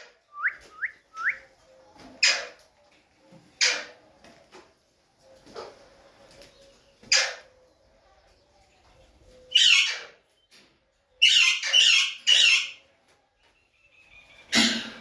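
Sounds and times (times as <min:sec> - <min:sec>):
parakeets squawking: 0:09.5 - 0:10.2, 0:11.2 - 0:12.8.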